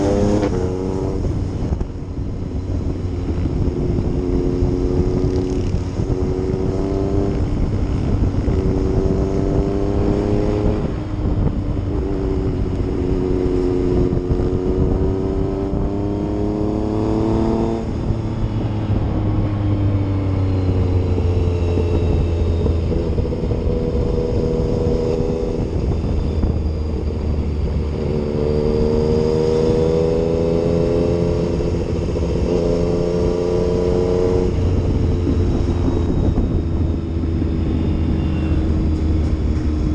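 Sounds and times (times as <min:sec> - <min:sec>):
low wind rumble: 0:00.0 - 0:39.9
motorcycle engine accelerating: 0:00.0 - 0:39.9.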